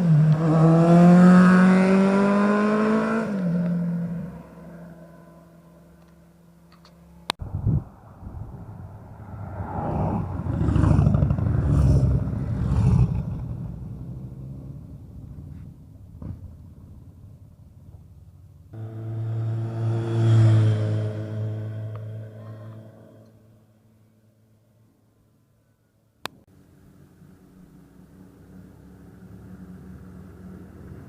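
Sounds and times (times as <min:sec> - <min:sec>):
motorcycle passing: 0:00.0 - 0:15.8, 0:17.0 - 0:23.9, 0:26.8 - 0:31.0
motorcycle engine low note: 0:18.7 - 0:24.0.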